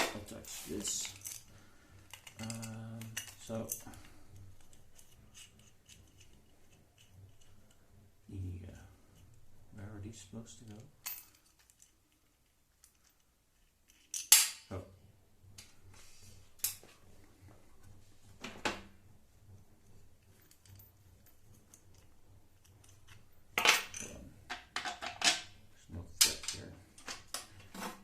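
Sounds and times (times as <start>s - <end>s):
metal hardware clinking: 0.0s - 7.6s, 10.7s - 14.7s, 20.3s - 25.5s, 26.2s - 27.7s.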